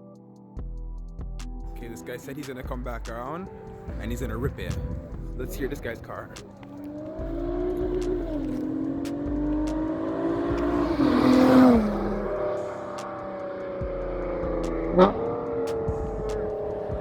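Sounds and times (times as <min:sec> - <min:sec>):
car accelerating past: 0:06.8 - 0:17.0.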